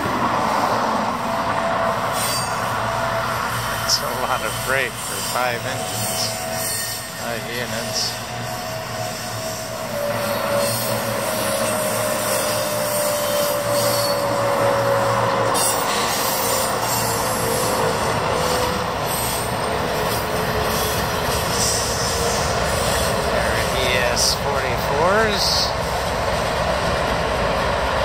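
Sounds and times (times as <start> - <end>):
freight train wheels on rails: 0.0 - 28.0
locomotives passing: 0.0 - 28.0
thin wheel squeal: 2.1 - 2.7, 3.7 - 24.3.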